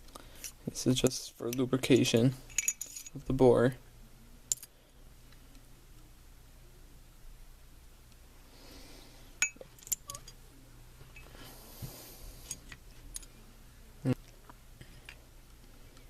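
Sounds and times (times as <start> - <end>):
metal parts clicking and clinking: 2.5 - 3.2, 4.5 - 4.7, 9.4 - 10.4.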